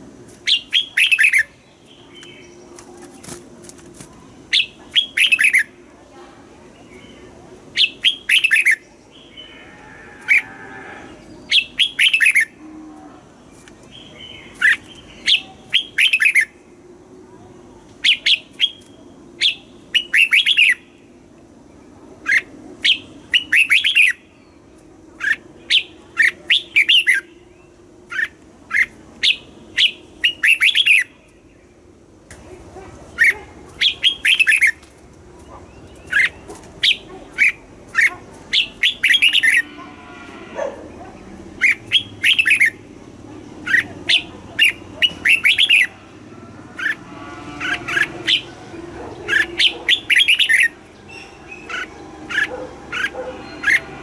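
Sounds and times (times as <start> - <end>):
bird singing whistled notes: 28.8 - 31.1.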